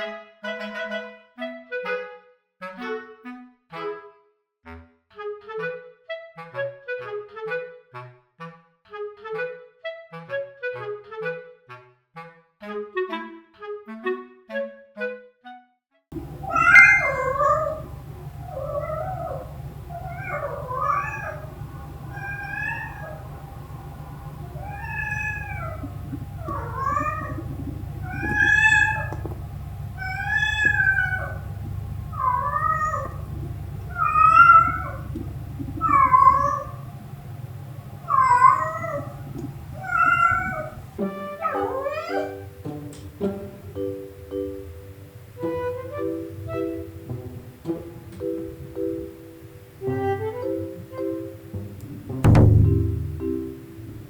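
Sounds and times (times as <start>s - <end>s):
cat meowing: 16.2s - 42.6s.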